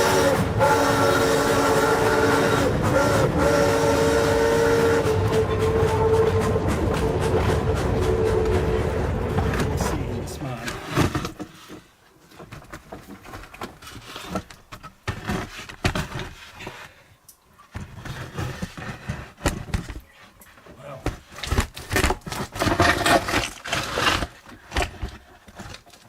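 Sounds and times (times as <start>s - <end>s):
camera rig scraping and knocking: 9.3s - 16.9s, 17.7s - 20.0s.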